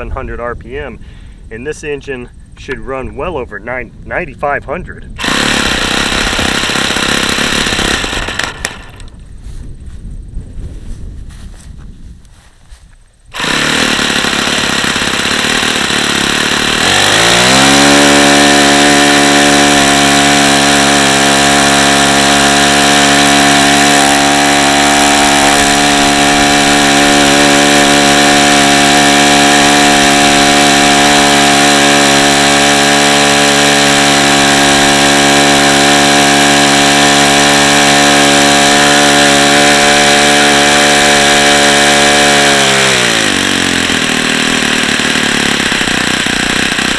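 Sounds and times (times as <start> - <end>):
model engine running with propeller: 5.1 - 9.6, 13.3 - 46.9.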